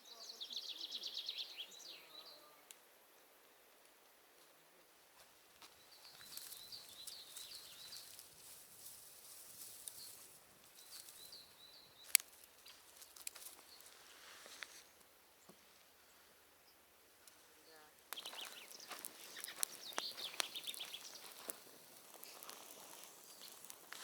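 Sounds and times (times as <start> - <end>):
small bird chirping: 0.0 - 2.6, 5.7 - 14.0, 17.5 - 24.0
soft rustle: 5.1 - 16.4, 17.2 - 24.0.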